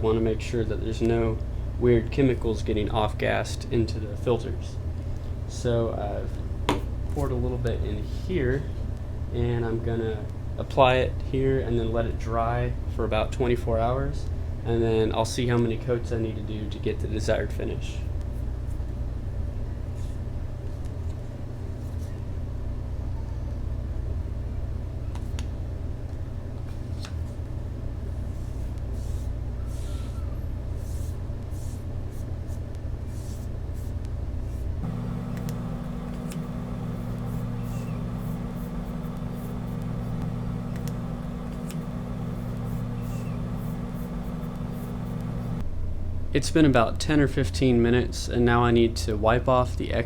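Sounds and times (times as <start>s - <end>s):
low mechanical hum: 0.0s - 50.0s
faint clicks: 34.8s - 45.6s.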